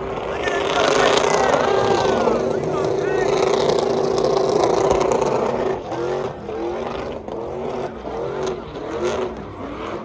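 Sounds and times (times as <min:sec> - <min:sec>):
truck engine revving: 0:00.0 - 0:10.0.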